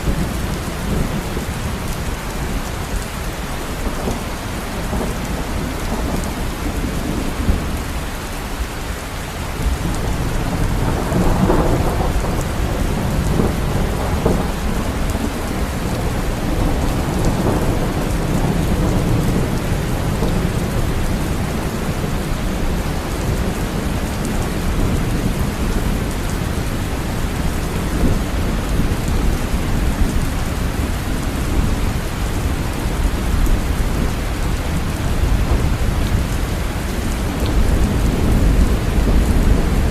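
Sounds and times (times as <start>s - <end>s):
heavy rain falling: 0.0s - 39.9s
thunder rumbling: 9.6s - 39.9s.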